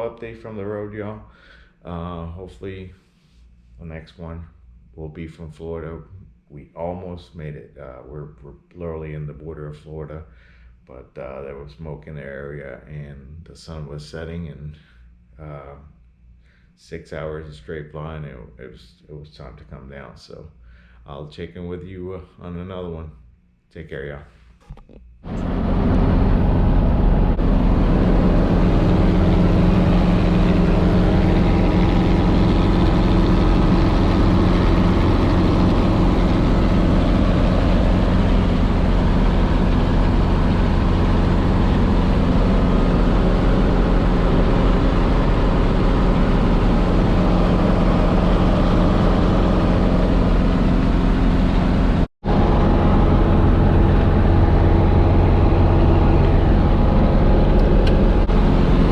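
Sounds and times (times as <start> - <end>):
helicopter engine and rotors: 25.3 - 58.9.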